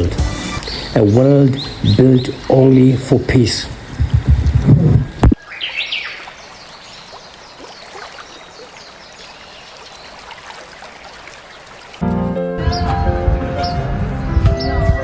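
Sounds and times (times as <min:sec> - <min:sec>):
water trickling and splashing: 0:00.6 - 0:12.1.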